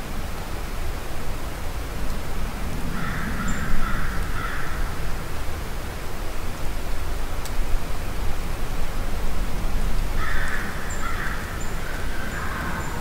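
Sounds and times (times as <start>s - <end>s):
steady background hiss: 0.0s - 13.0s
distant bird call: 10.2s - 13.0s.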